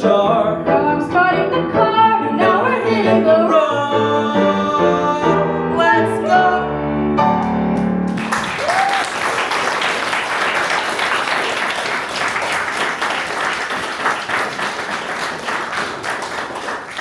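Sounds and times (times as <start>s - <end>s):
audience applauding: 7.8s - 17.0s
person whooping: 8.5s - 9.2s.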